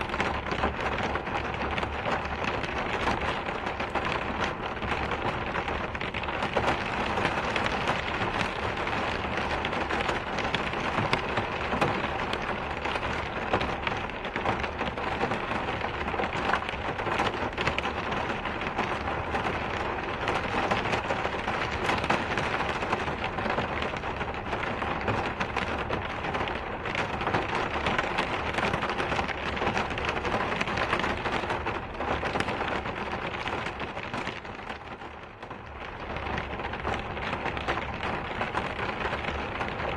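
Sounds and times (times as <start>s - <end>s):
raindrops ticking: 0.0s - 39.9s
steady rainfall: 0.0s - 39.9s.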